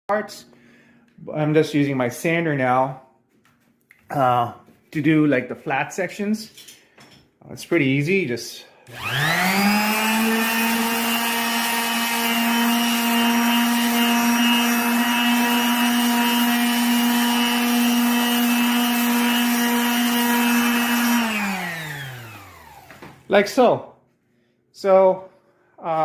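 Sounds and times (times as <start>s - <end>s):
sander winding down: 8.9s - 23.3s
electric sander on wood: 8.9s - 23.4s.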